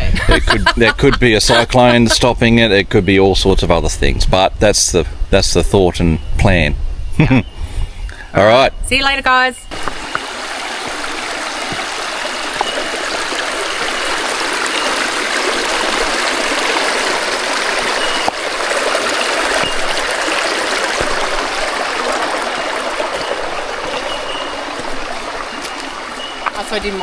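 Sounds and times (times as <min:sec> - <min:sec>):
creek water trickling: 0:00.5 - 0:03.5, 0:09.3 - 0:27.0.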